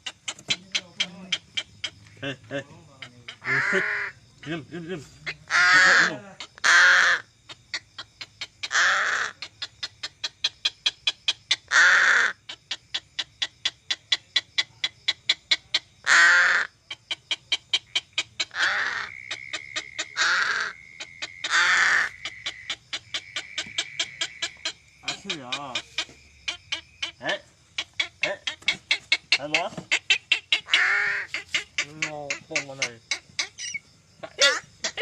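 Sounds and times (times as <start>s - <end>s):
crow cawing: 3.0s - 4.2s, 5.2s - 7.8s, 8.6s - 9.4s, 11.6s - 12.4s, 16.0s - 16.8s, 18.4s - 35.0s.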